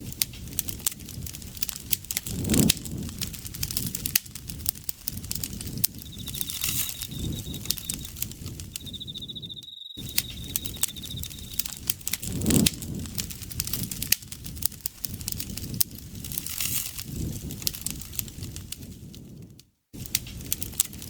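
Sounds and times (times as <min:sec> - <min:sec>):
campfire crackling and popping: 0:00.0 - 0:21.0
low rush of flames: 0:00.0 - 0:21.0
high pulsing insect trill: 0:05.8 - 0:11.8.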